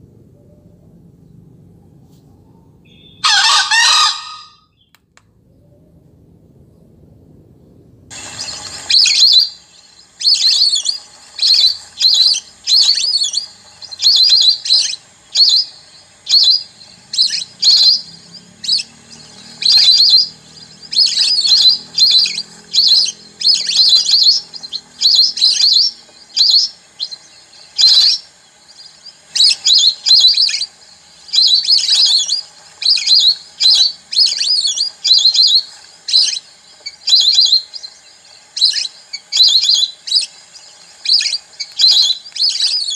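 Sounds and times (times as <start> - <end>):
recorded bird chirping from speaker: 0.1 - 6.2, 8.1 - 42.9.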